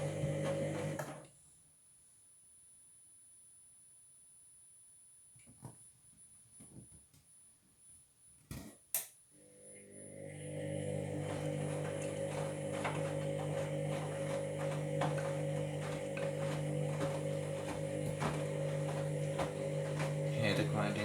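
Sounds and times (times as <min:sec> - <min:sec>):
washing machine motor humming: 0:00.0 - 0:01.2, 0:09.4 - 0:21.0.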